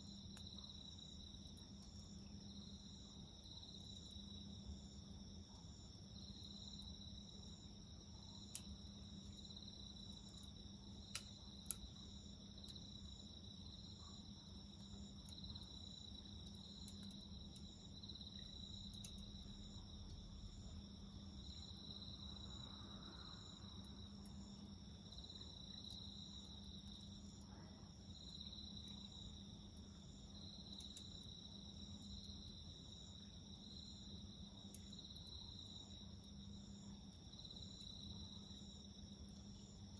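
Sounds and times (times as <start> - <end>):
insects chirring: 0.1 - 27.4, 28.0 - 39.9
wood fire popping: 8.2 - 21.9.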